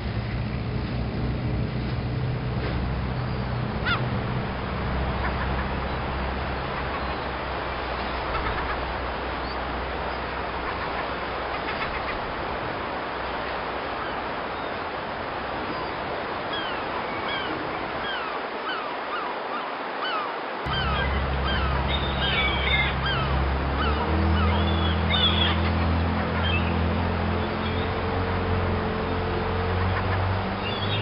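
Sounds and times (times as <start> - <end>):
birds calling: 3.0 - 31.0
low hum: 20.7 - 31.0.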